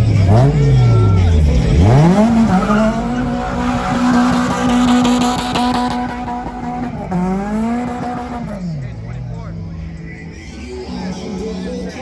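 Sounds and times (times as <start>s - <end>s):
car engine revving: 0.0s - 10.8s
tyres squealing: 0.3s - 8.7s.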